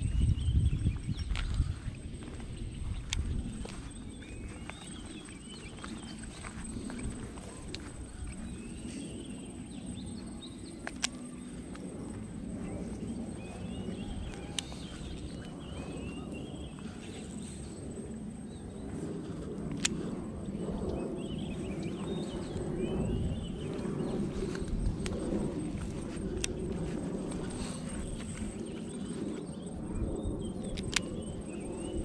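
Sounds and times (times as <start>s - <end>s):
low outdoor rumble: 0.0s - 32.0s
small birds twittering: 0.0s - 32.0s
sharp clicks: 10.8s - 11.8s, 19.7s - 20.1s, 26.4s - 26.6s, 30.7s - 31.2s.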